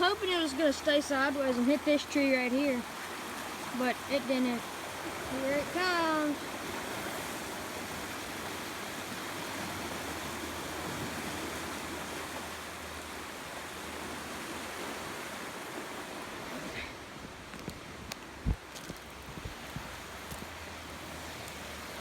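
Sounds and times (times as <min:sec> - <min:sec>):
rushing creek water: 0:00.0 - 0:22.0.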